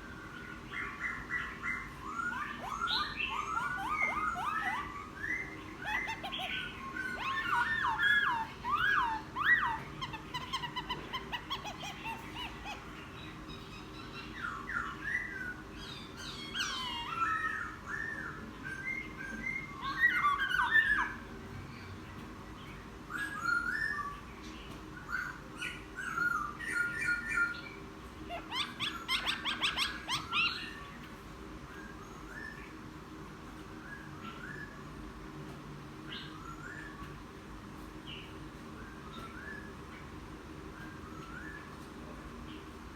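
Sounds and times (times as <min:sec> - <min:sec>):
bird singing chattering song: 0:00.1 - 0:31.0.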